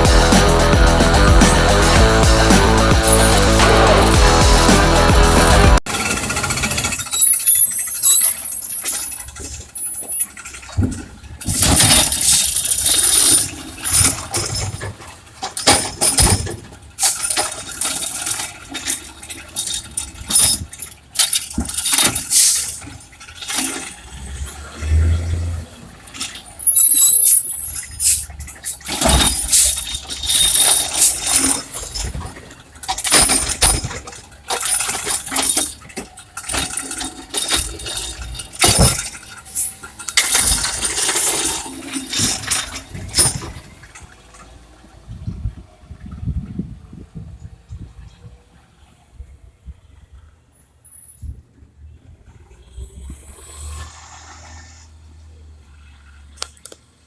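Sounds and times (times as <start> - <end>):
high squeals: 0.0 - 10.7
recyclables crashing into hopper: 0.0 - 44.8
truck engine running: 0.0 - 57.0.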